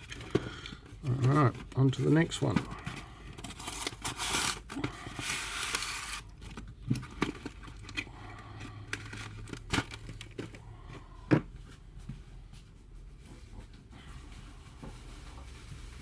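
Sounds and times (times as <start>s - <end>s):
packing material rustling: 0.0s - 10.7s.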